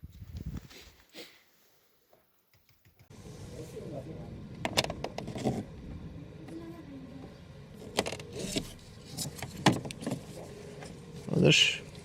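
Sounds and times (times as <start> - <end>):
faint steady hum: 3.1 - 12.0.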